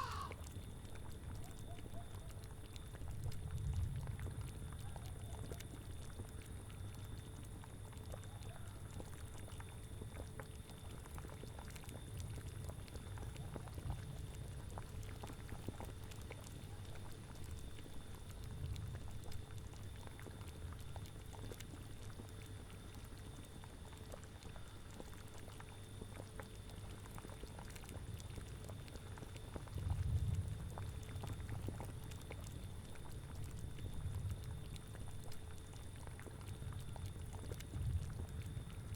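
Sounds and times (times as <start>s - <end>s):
cauldron bubbling: 0.0s - 0.4s.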